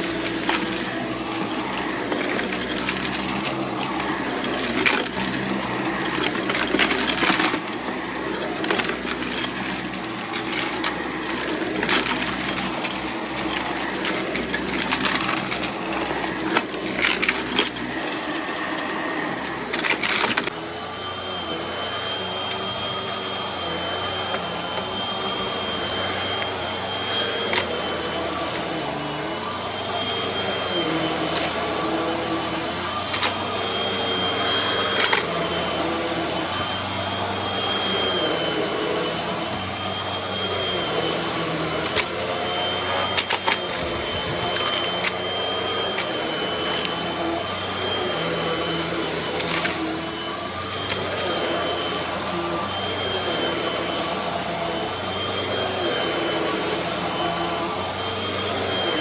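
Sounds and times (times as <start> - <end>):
debris crunching in vacuum: 0.0 - 20.6, 37.6 - 48.7
vacuum cleaner whining: 0.0 - 59.0.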